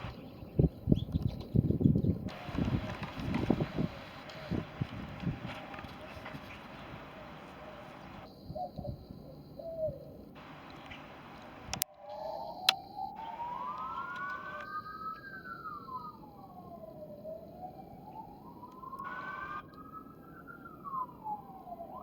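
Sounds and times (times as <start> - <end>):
emergency siren wailing: 2.3 - 8.3, 10.4 - 22.0
sharp clicks: 10.4 - 11.9.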